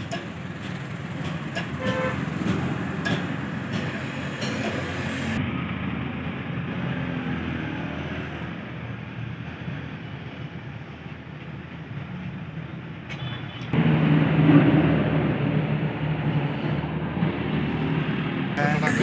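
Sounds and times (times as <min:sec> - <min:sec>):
vehicle engine rumble: 0:00.0 - 0:06.9.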